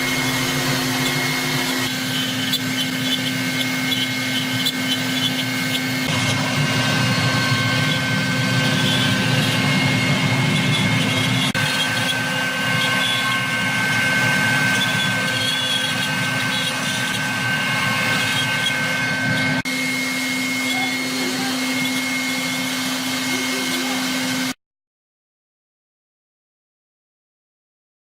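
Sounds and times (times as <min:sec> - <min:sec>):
router spindle high whine: 0:00.0 - 0:24.6.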